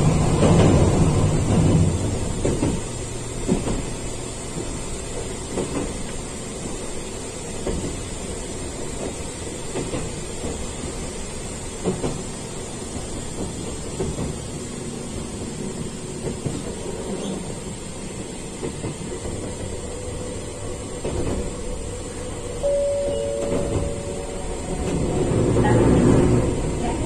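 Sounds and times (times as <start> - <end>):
electric train rumble: 0.0 - 27.0.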